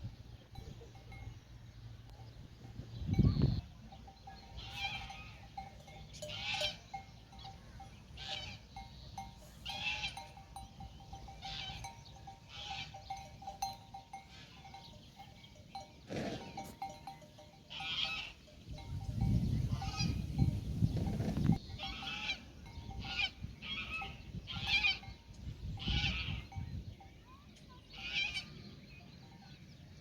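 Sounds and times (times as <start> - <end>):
metal neck bells clanking: 0.5 - 23.2.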